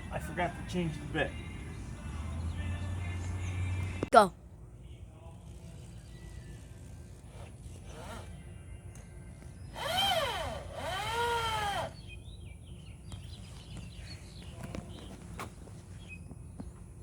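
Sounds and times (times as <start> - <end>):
power drill driving screws: 7.2 - 8.3, 9.7 - 12.0.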